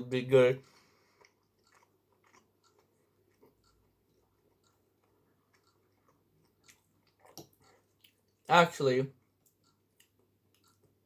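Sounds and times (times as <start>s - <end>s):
mouth clicks of chewing: 1.2s - 8.3s.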